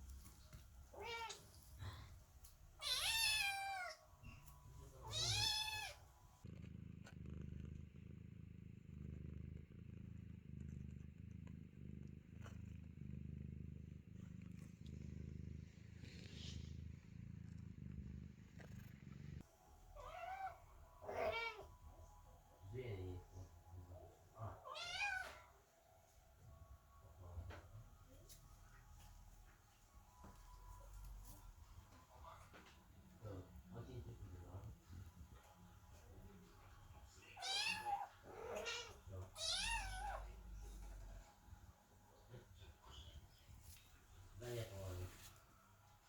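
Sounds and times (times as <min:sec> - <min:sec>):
cat purring: 0:00.0 - 0:46.0
kittens meowing: 0:02.8 - 0:04.0, 0:05.0 - 0:06.0, 0:20.0 - 0:21.7, 0:24.6 - 0:25.5, 0:37.4 - 0:40.4.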